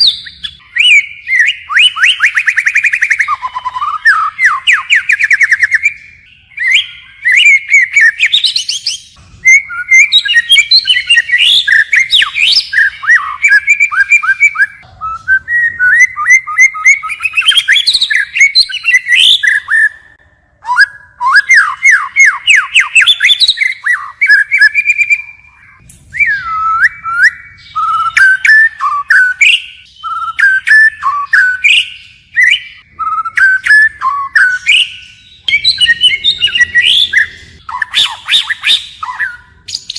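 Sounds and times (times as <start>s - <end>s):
songbird whistling and trilling: 0.0s - 39.9s.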